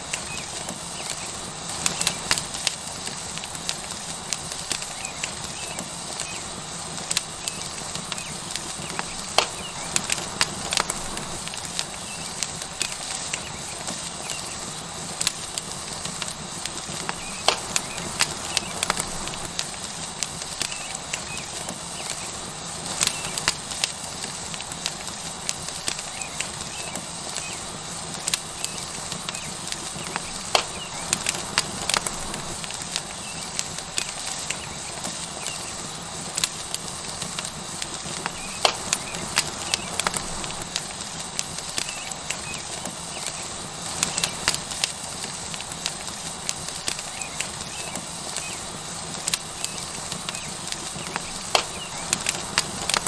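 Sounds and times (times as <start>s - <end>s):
burning wood crackling and popping: 0.0s - 53.0s
steak sizzling on hot rock: 0.0s - 53.0s.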